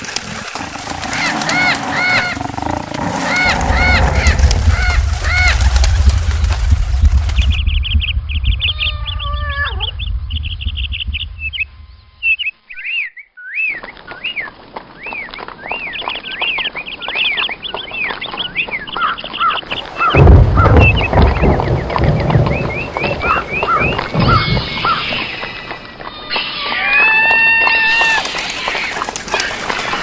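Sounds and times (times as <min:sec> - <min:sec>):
low rumble: 0:00.8 - 0:12.4, 0:19.8 - 0:26.0.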